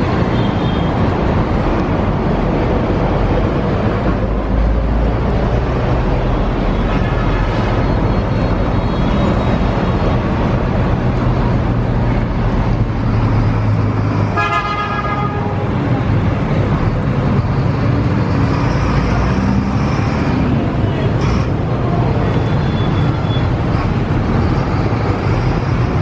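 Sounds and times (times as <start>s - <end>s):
loud rushing noise: 0.0s - 26.0s
vehicle horn: 14.3s - 15.7s.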